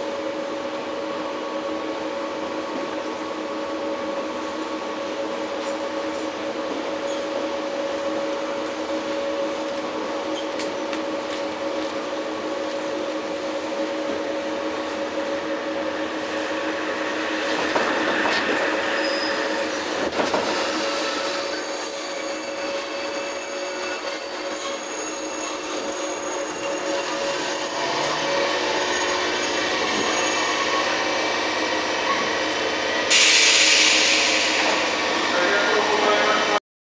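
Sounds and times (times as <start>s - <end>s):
train interior hum: 0.0s - 36.6s
high-pitched wheel and brake squeal: 18.8s - 31.2s.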